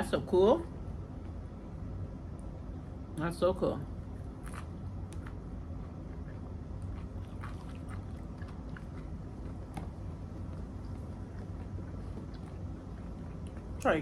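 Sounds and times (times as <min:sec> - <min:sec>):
low steady hum: 0:00.0 - 0:14.0
person chewing food: 0:04.2 - 0:13.9.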